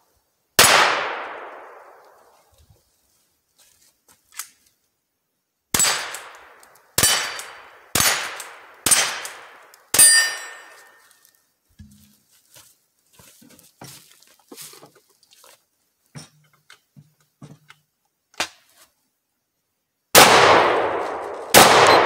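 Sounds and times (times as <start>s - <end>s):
gunshots: 0.6s - 2.0s, 5.7s - 10.6s, 20.2s - 22.0s
steel plate ringing clang: 10.0s - 11.0s.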